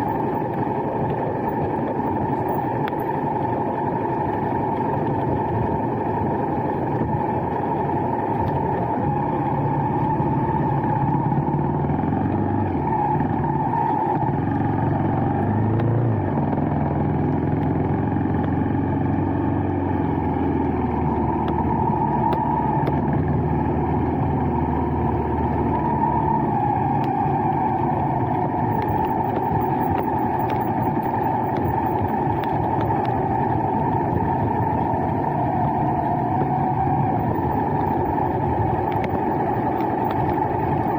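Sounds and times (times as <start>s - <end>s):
vehicle engine humming: 0.0s - 40.9s
faint ticks: 28.7s - 33.2s, 38.8s - 40.9s.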